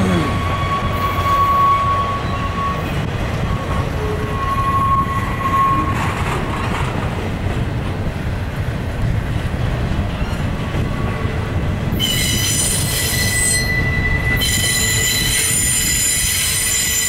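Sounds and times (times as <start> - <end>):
high wheel squeal: 0.0 - 6.3, 12.0 - 17.0
train wheels rumbling on rails: 0.0 - 17.0.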